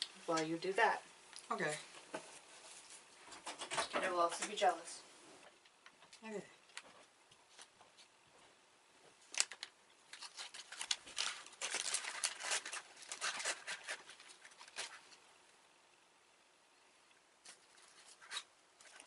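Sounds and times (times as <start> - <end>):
plastic packaging crinkling: 9.2 - 15.2.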